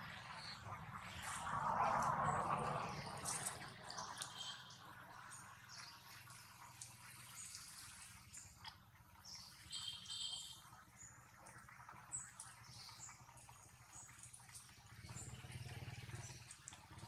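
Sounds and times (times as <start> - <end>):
low steady rumble: 0.0 - 5.8
birds chirping and calling: 3.0 - 4.8.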